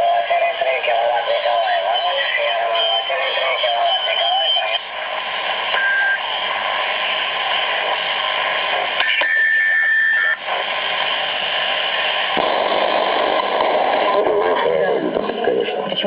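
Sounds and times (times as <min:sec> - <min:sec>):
radio static hiss: 0:00.0 - 0:16.0
steady whistle tone: 0:01.6 - 0:04.9.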